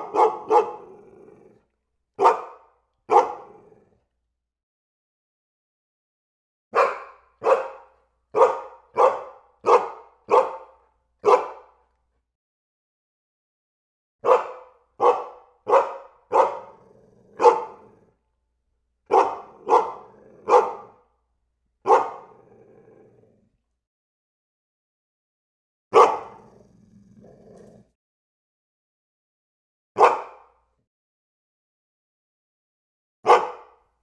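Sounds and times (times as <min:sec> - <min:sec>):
dog barking: 0:00.0 - 0:01.4, 0:02.2 - 0:03.9, 0:06.7 - 0:11.8, 0:14.2 - 0:18.2, 0:19.1 - 0:21.1, 0:21.8 - 0:22.7, 0:25.9 - 0:26.6, 0:30.0 - 0:30.6, 0:33.2 - 0:33.9.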